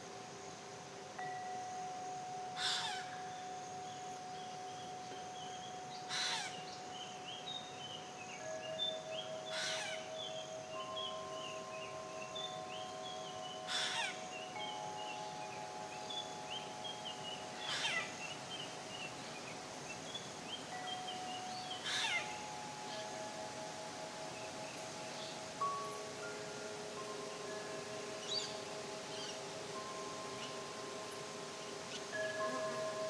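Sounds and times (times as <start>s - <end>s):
small birds chirping: 2.6s - 33.0s.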